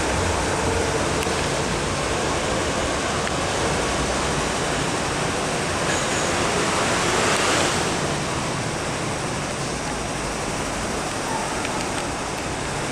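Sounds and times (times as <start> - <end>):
train passing on rails: 0.0 - 12.9.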